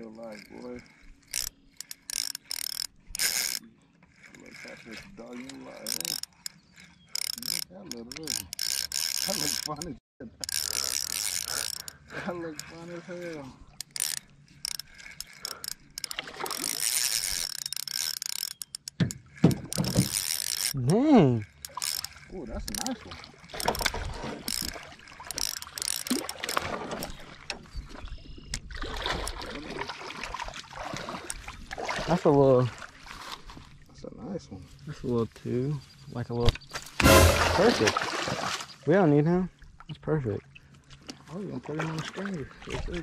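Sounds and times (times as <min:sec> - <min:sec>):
spinning reel whirring and clicking: 0:00.0 - 0:27.2.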